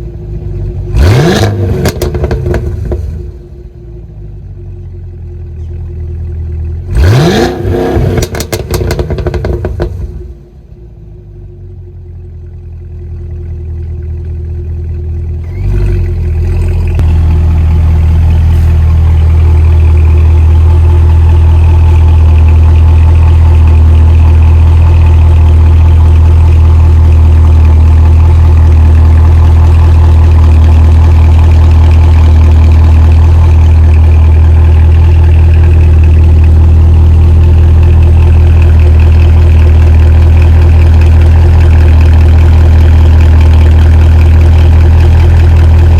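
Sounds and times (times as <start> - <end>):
car engine exhaust idling: 0.0 - 45.9.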